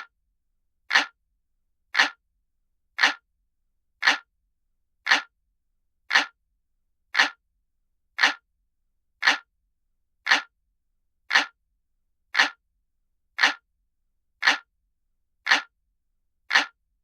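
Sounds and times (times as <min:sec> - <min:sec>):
clock ticking: 0:00.9 - 0:01.2, 0:01.9 - 0:02.2, 0:03.0 - 0:03.3, 0:04.0 - 0:04.3, 0:05.0 - 0:05.4, 0:06.1 - 0:06.4, 0:07.1 - 0:07.4, 0:08.2 - 0:08.5, 0:09.2 - 0:09.5, 0:10.2 - 0:10.5, 0:11.3 - 0:11.6, 0:12.3 - 0:12.6, 0:13.4 - 0:13.6, 0:14.4 - 0:14.7, 0:15.4 - 0:15.7, 0:16.4 - 0:16.8.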